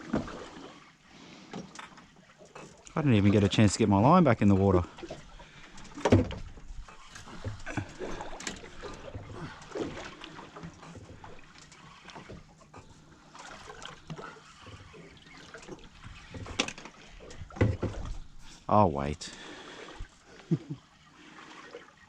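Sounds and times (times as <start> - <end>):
water splashing against boat hull: 0.0 - 22.0
light knocks and rattles: 5.1 - 13.0, 14.0 - 18.4.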